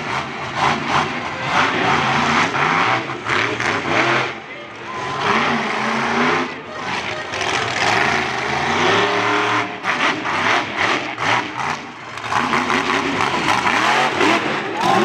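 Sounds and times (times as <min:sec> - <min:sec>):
monster truck engine revving: 0:00.0 - 0:15.0.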